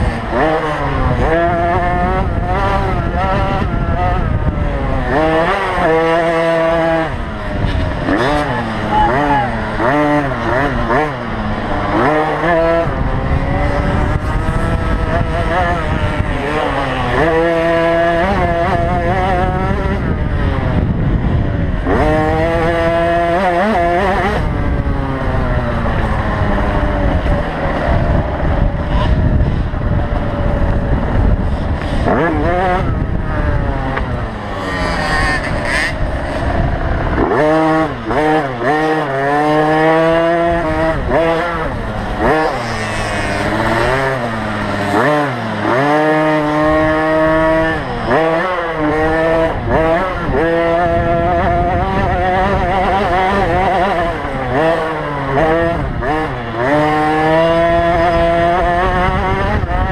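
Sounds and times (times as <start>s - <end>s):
dirt bike engines revving: 0.0s - 59.9s.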